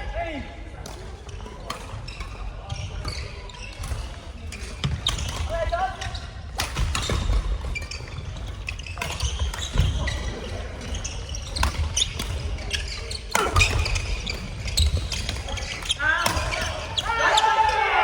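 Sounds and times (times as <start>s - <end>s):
shoe squeaks: 2.1s - 5.4s, 6.9s - 17.6s.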